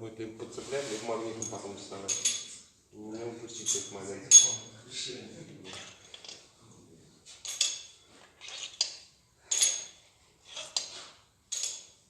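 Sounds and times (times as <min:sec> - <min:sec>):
metal bolts clinking and scraping: 0:01.3 - 0:02.7, 0:03.5 - 0:04.7, 0:05.7 - 0:06.5, 0:07.3 - 0:12.0.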